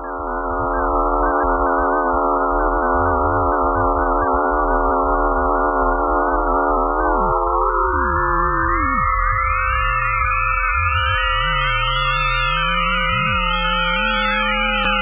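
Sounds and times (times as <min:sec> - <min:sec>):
wavering electronic tones: 0:00.0 - 0:15.0
low hum: 0:14.7 - 0:15.0.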